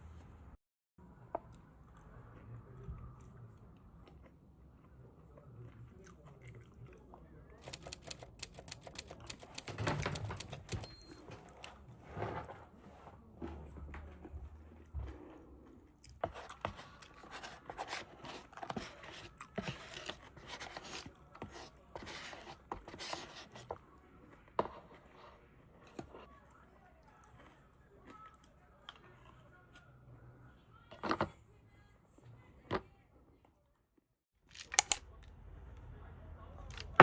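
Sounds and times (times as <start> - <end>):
person chewing and crunching food: 1.9 - 9.6
scrapes: 11.2 - 26.4.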